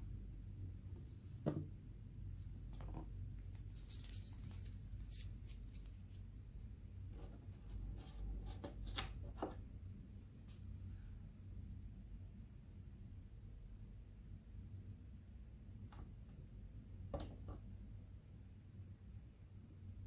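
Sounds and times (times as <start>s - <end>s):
rustling: 2.4s - 6.4s.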